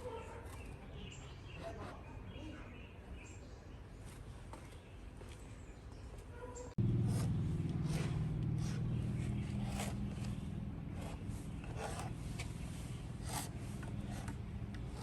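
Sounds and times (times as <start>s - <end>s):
low motor hum: 6.8s - 15.0s
short scraping strokes: 7.0s - 15.0s.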